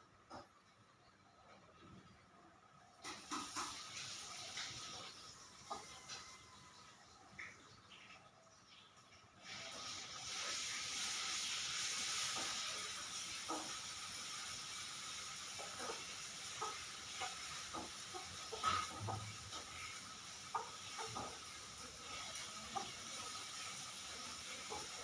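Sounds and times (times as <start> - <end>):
steady hiss: 8.7 - 25.0.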